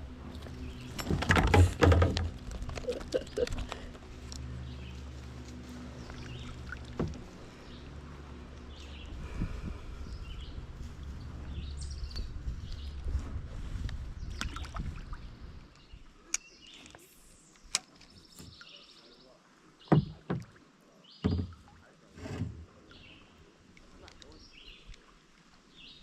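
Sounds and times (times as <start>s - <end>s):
loud knocks against kayak: 1.0s - 2.3s, 19.9s - 20.5s, 21.2s - 21.6s
low rumble: 2.2s - 15.7s.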